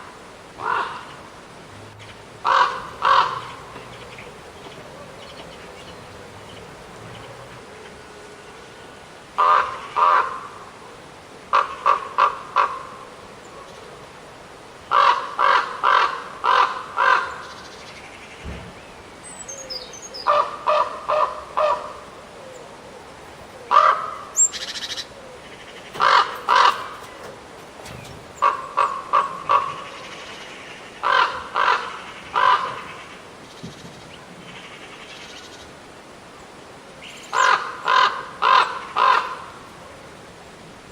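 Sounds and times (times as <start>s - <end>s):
corvid cawing harshly: 2.4s - 7.6s.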